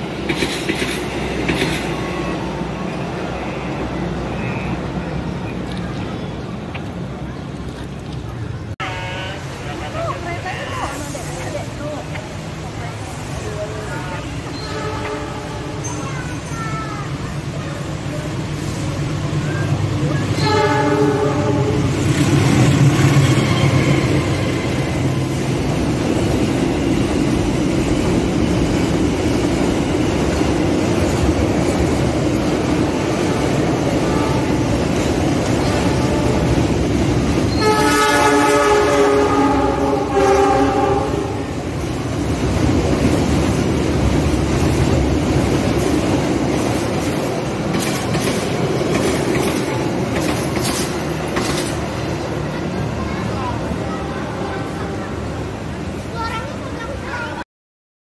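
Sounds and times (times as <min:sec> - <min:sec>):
locomotive rumbling: 0:00.0 - 0:57.4
train horn blast: 0:14.5 - 0:15.9, 0:20.4 - 0:22.1, 0:33.3 - 0:34.8, 0:35.6 - 0:36.7, 0:37.5 - 0:41.5.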